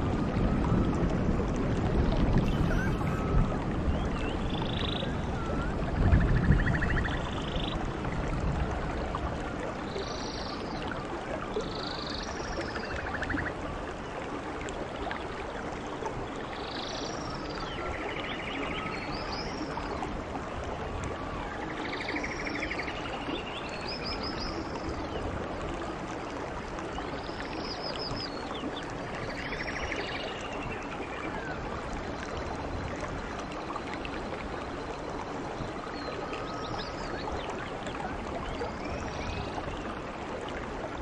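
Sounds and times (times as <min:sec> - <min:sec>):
small animals chirping and trilling: 0:02.4 - 0:03.4.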